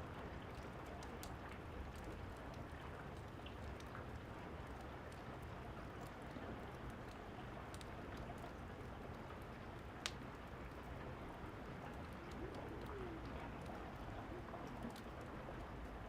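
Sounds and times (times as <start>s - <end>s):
fire crackling: 0.3s - 15.8s.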